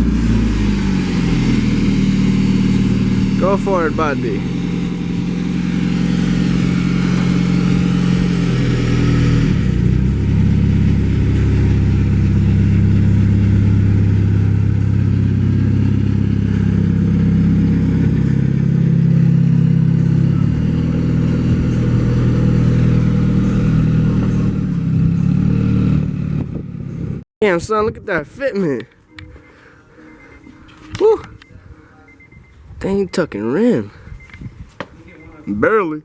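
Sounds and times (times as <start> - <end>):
car engine running at low speed: 0.0 - 27.2.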